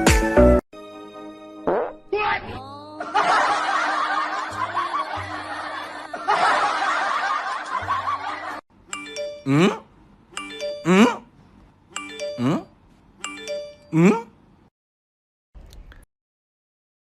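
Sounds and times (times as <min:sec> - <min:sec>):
canned laughter: 0:03.0 - 0:08.6.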